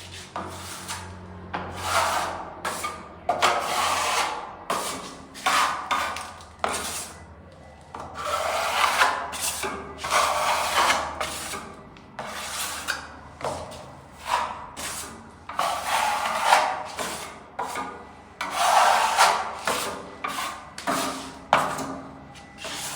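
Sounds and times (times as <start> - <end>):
hand tool rubbing a surface: 13.6 - 22.9.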